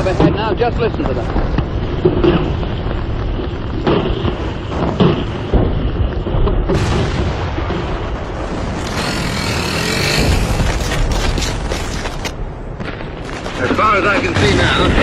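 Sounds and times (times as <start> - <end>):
rumble of gunfire: 1.2 - 15.0
artillery booms: 6.4 - 8.8.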